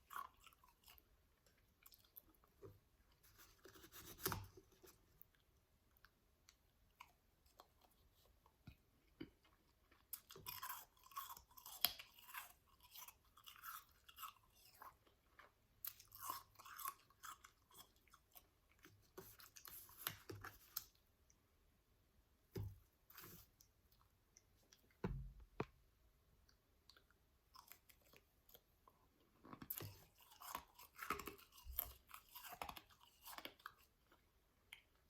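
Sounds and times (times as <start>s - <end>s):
chewing crunchy ice: 0.0s - 2.7s, 9.1s - 21.0s, 29.5s - 35.0s.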